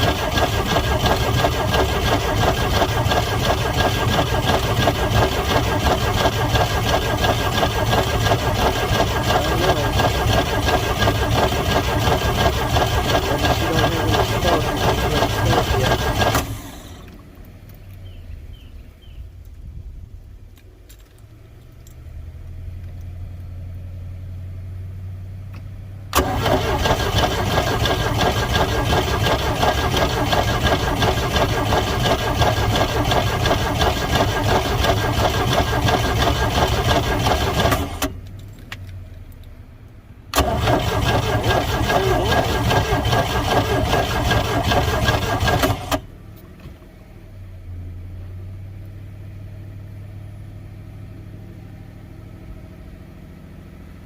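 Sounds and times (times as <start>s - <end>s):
boat engine starter cranking: 0.0s - 17.2s, 26.2s - 38.2s, 40.3s - 46.0s.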